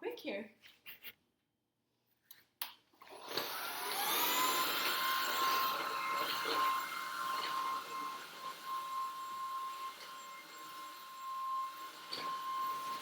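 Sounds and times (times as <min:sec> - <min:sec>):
vacuum motor whining: 0:03.0 - 0:13.0.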